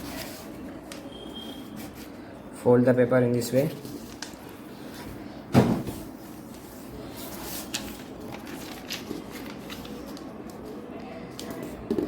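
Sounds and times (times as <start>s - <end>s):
paper crinkling: 3.6s - 5.2s, 6.2s - 11.8s.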